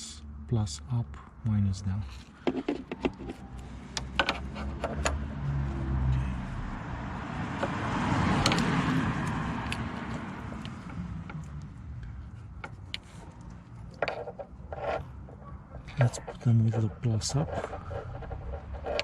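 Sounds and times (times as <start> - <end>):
vehicle passing: 3.3 - 14.0.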